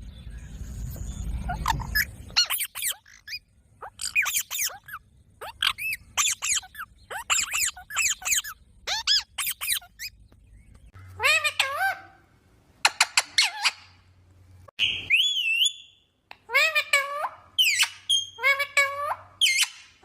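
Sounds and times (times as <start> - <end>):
low rumble: 0.0 - 2.4
parrot squawking: 1.5 - 10.1, 11.0 - 12.2, 12.8 - 14.0, 16.5 - 20.0.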